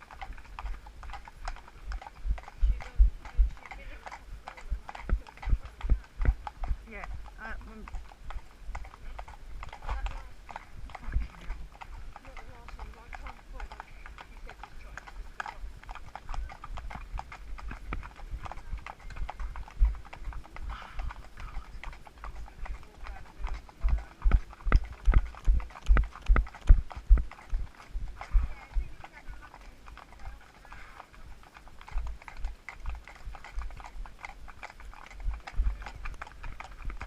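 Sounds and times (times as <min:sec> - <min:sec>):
horse hooves clip-clopping: 0:00.0 - 0:37.0
low thudding: 0:24.2 - 0:28.5.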